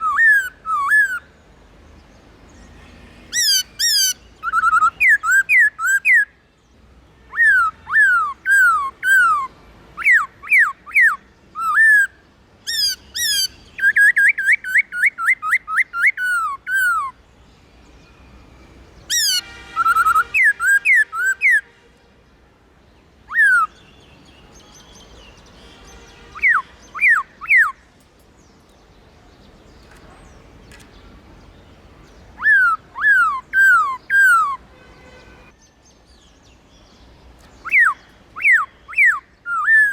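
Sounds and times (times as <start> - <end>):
bird whistled song phrases: 0.0 - 1.3, 3.4 - 6.3, 7.3 - 17.2, 19.1 - 21.6, 23.3 - 27.9, 32.3 - 34.6, 37.6 - 39.9.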